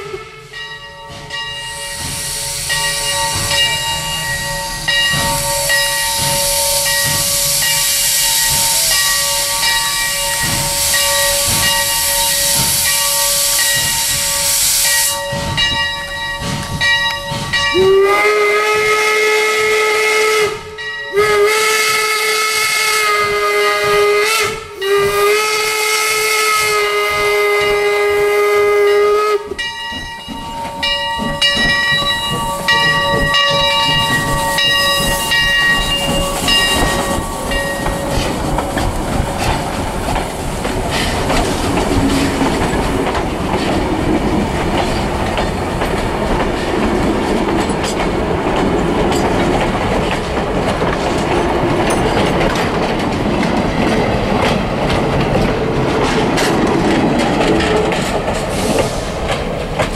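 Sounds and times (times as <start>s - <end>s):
steam locomotive whistle: 0.0s - 0.8s, 1.6s - 15.6s, 17.5s - 29.7s
locomotive bell ringing: 0.0s - 18.4s, 20.8s - 21.4s, 29.5s - 38.5s, 51.7s - 55.3s
train coaches rumbling past: 0.0s - 59.9s
wheels clicking over rail joints: 29.4s - 59.9s.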